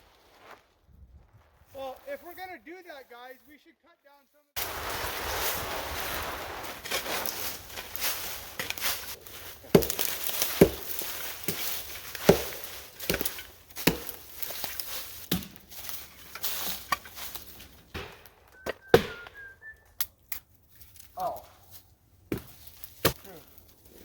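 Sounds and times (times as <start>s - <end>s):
wood being chopped: 6.8s - 19.5s, 22.3s - 23.5s.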